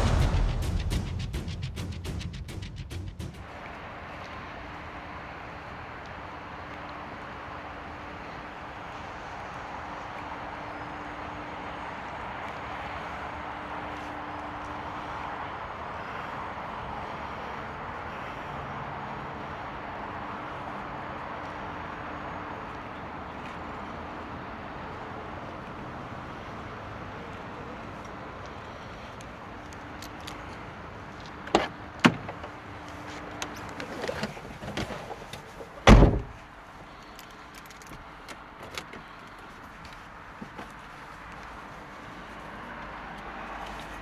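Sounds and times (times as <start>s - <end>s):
steady background noise: 0.0s - 44.0s
rattling and handling noise: 29.6s - 41.8s
car door thud: 31.5s - 32.6s, 33.5s - 36.4s
car door clicks: 31.5s - 36.4s.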